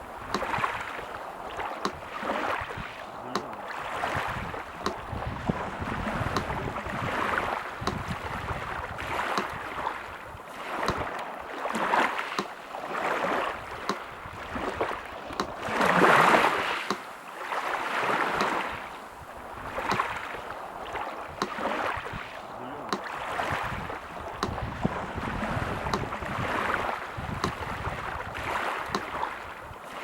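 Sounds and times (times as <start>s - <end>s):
sea surf washing in: 0.0s - 30.0s
metronome ticking: 6.3s - 6.7s, 7.8s - 8.1s, 24.4s - 24.6s.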